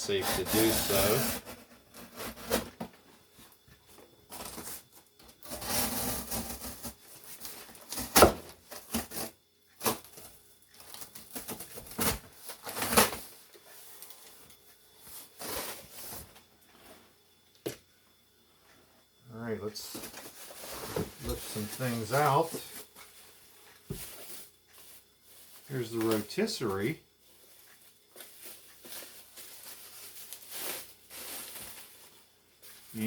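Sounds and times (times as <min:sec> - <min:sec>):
cardboard scraping and rustling: 0:00.0 - 0:03.0, 0:04.3 - 0:10.2, 0:10.8 - 0:13.3, 0:19.8 - 0:23.3, 0:28.2 - 0:33.0.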